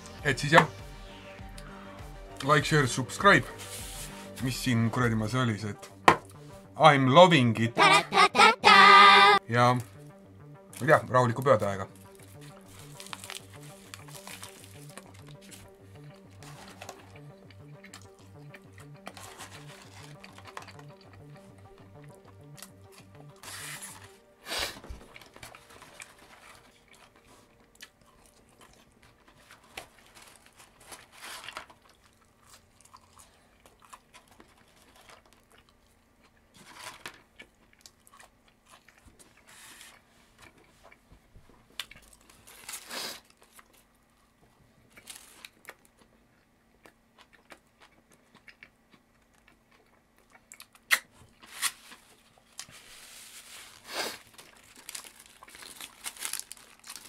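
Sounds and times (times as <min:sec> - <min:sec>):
paper wrapper crinkling: 0:11.9 - 0:17.4, 0:19.1 - 0:21.3, 0:22.6 - 0:27.6, 0:28.2 - 0:32.8, 0:36.6 - 0:37.4, 0:45.0 - 0:46.0, 0:51.4 - 0:57.0
person chewing food: 0:12.0 - 0:57.0.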